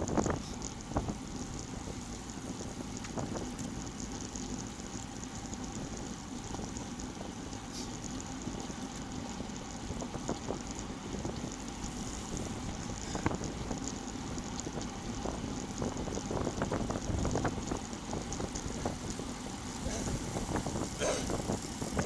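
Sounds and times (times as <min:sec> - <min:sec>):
wind rushing over microphone: 0:09.9 - 0:22.0.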